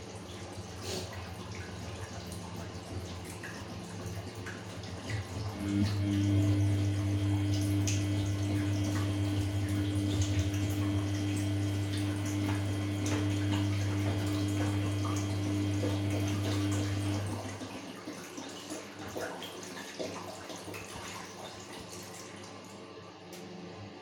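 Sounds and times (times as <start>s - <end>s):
washing machine running: 0.0s - 24.0s
water flowing: 1.1s - 22.7s
electrical hum: 4.6s - 17.8s.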